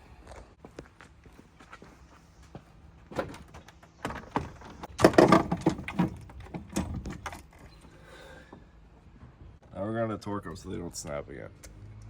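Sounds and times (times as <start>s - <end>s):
objects knocking and clattering: 3.1s - 7.7s.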